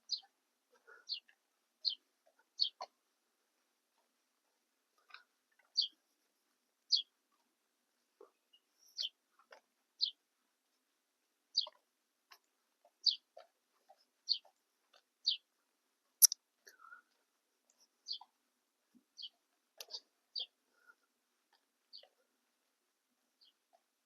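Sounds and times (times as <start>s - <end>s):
small bird chirping: 0.0s - 0.3s, 1.0s - 2.0s, 2.6s - 2.9s, 5.1s - 6.0s, 6.9s - 7.1s, 8.5s - 9.2s, 10.0s - 10.2s, 11.5s - 11.8s, 13.0s - 13.4s, 14.2s - 14.5s, 15.2s - 15.5s, 16.2s - 17.0s, 18.0s - 18.3s, 19.2s - 20.6s, 21.9s - 22.2s.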